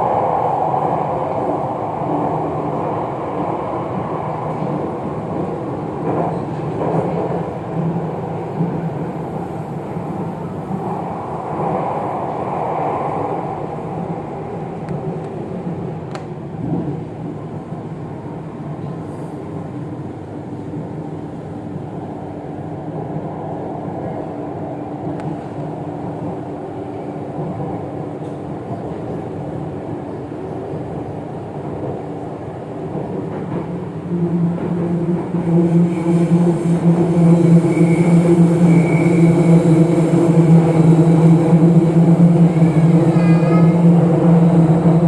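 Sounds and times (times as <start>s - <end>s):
train wheels rumbling: 0.0s - 18.2s.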